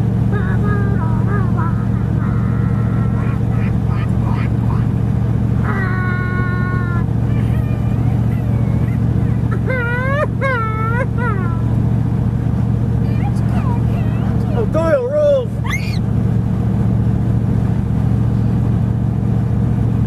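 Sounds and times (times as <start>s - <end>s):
road noise: 0.0s - 20.0s
truck engine drone: 0.0s - 20.0s
short rising-and-falling calls: 15.6s - 16.1s.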